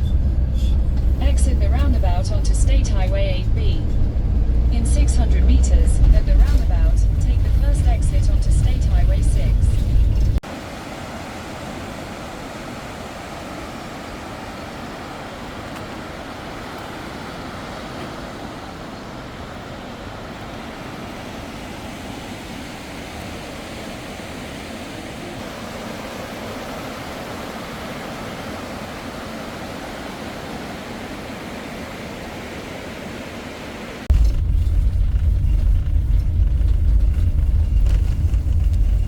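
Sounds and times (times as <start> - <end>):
deep rumble: 0.0 - 10.4, 34.1 - 39.0
motorhome road and tyre noise: 0.0 - 39.0.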